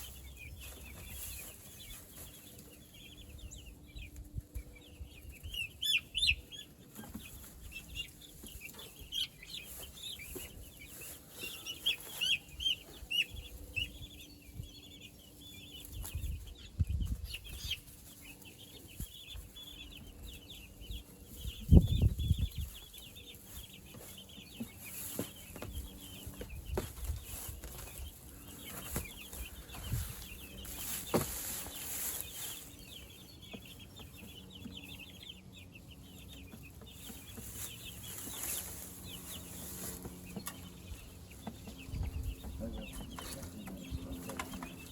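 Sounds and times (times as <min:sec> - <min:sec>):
chicks cheeping: 0:00.0 - 0:44.9.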